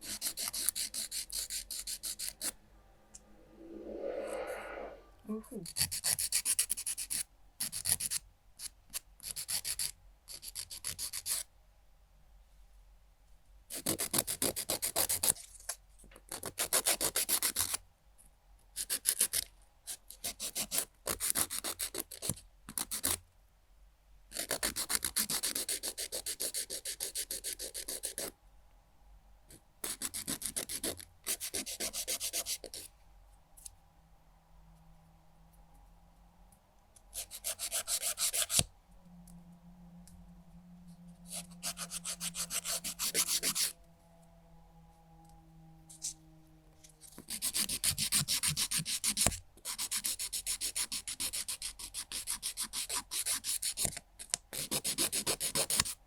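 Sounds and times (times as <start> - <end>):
nail file rasping on fingernail: 0.0 - 2.6, 5.6 - 11.5, 18.8 - 23.2, 24.3 - 28.3, 29.8 - 32.8, 37.1 - 38.6, 47.1 - 56.0.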